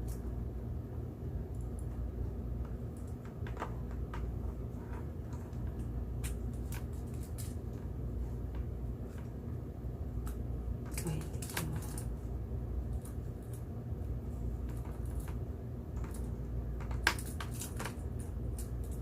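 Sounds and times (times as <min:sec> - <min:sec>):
steady low hum: 0:00.0 - 0:19.0
small parts clicking and rattling: 0:02.6 - 0:07.9, 0:10.2 - 0:12.2, 0:12.9 - 0:13.7, 0:14.6 - 0:19.0.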